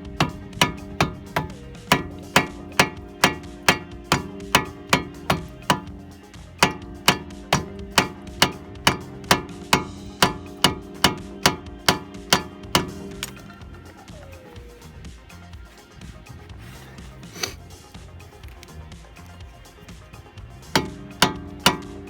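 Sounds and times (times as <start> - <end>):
hammer striking metal: 0.0 - 14.2, 20.6 - 22.0.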